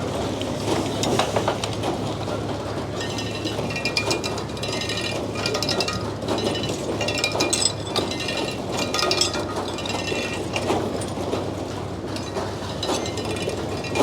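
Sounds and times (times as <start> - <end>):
metallic ratcheting and clattering: 2.9 - 14.0.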